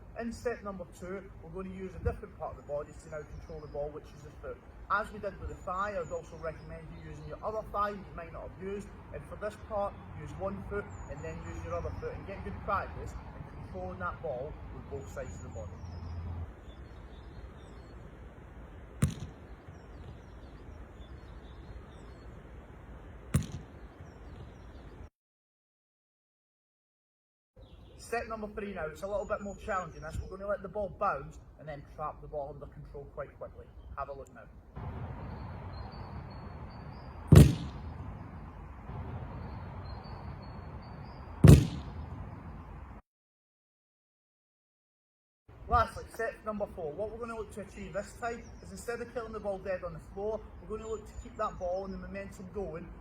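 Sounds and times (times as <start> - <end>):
outdoor background noise: 0.0 - 25.1, 27.6 - 43.0, 45.5 - 53.0
faint bird chirps: 14.3 - 22.6, 35.1 - 38.6, 39.2 - 42.8
football thudding: 19.0 - 20.2, 23.3 - 23.8, 37.3 - 38.0, 41.4 - 42.2.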